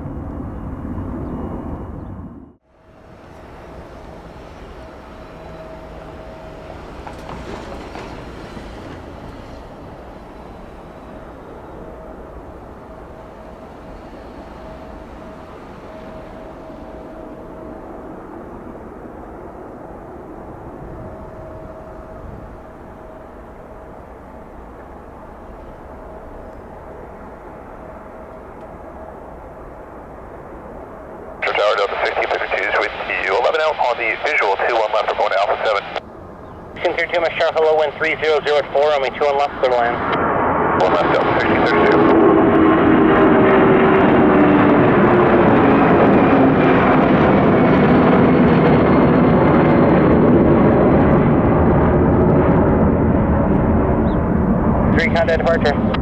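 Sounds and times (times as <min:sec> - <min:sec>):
jet engines rumbling: 0:00.0 - 0:56.0
faint steady tone: 0:02.7 - 0:36.9
faint tones sliding down: 0:02.8 - 0:19.1.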